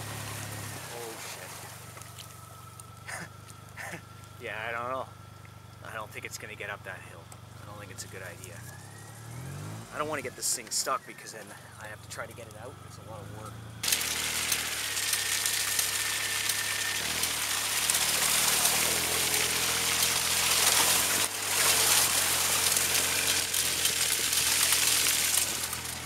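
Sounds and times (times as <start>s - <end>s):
water and slush spraying: 0.0s - 2.0s, 13.8s - 26.0s
car engine running: 0.0s - 26.0s.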